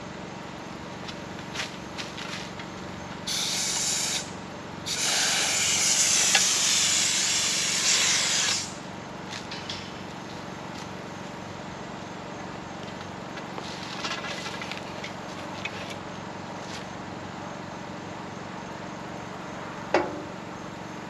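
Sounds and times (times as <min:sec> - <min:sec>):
generator running: 0:00.0 - 0:21.0
compressed air hissing: 0:03.3 - 0:08.8.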